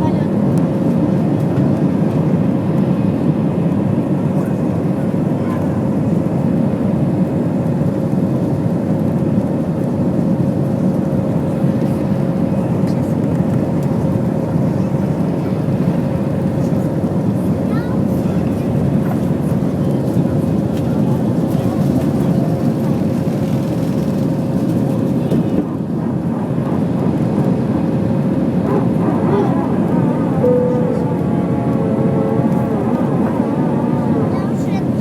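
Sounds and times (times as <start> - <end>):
airliner engines in cabin: 0.0 - 35.0
constant held tone: 30.4 - 31.7.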